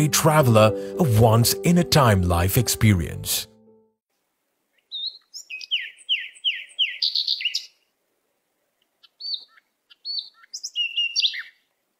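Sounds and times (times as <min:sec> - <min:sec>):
short high bird chirps: 0:04.9 - 0:07.8, 0:09.1 - 0:11.6.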